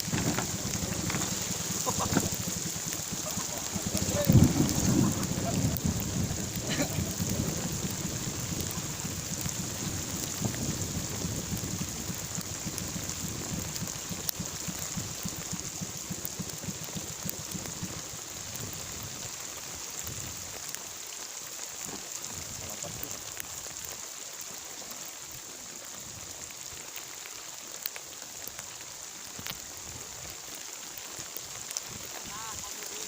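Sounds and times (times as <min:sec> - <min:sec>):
low rumble of thunder: 0:00.0 - 0:20.5
heavy rain falling: 0:00.0 - 0:33.0.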